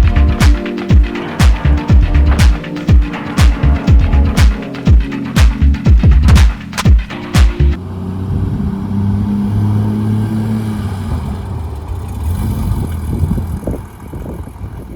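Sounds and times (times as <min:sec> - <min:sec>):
electronic music beats: 0:00.0 - 0:07.8.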